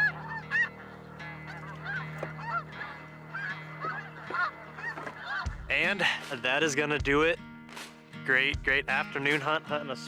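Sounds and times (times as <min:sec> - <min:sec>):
geese honking: 0:00.0 - 0:06.2.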